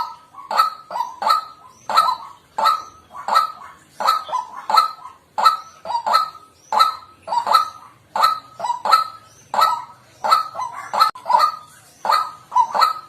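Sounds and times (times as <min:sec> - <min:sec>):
waterhen calling harsh notes: 0:00.0 - 0:13.0.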